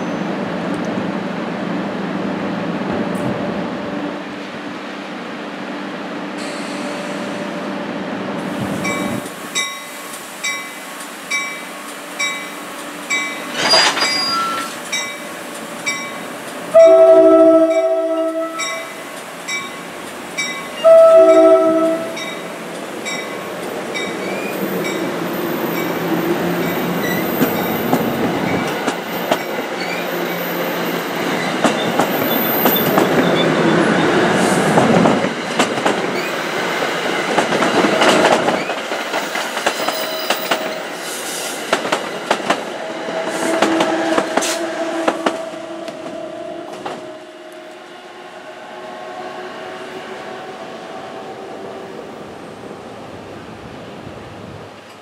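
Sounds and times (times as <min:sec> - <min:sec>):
train coaches rumbling past: 0:00.0 - 0:55.0
train bell ringing: 0:08.8 - 0:17.1, 0:17.7 - 0:26.0
train horn blasts: 0:16.7 - 0:19.0, 0:20.8 - 0:22.4, 0:43.2 - 0:50.8.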